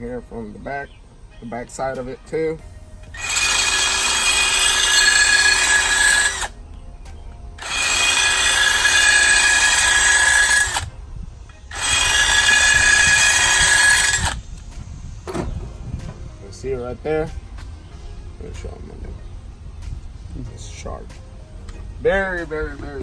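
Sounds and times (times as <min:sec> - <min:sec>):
grinding wheel sharpening steel blade: 0:03.2 - 0:06.5, 0:07.6 - 0:10.9, 0:11.7 - 0:14.4.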